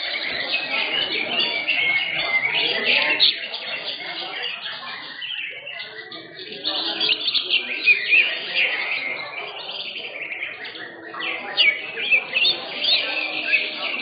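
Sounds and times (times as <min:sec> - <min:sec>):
birds singing chirps and trills: 0:00.0 - 0:14.0.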